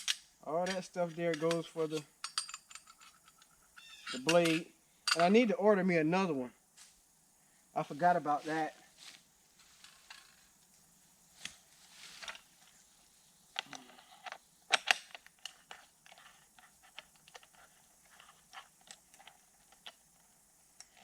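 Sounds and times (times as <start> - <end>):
metal tools clinking: 0.0 - 5.4.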